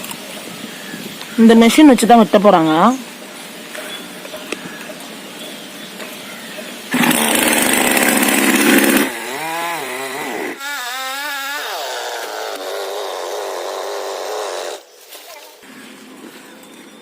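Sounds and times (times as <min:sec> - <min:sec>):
chainsaw cutting wood: 0:06.9 - 0:14.8.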